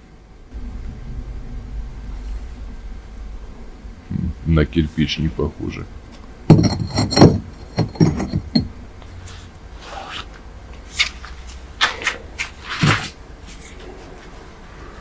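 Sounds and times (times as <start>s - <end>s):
hard knocks and clacks: 6.5s - 8.8s.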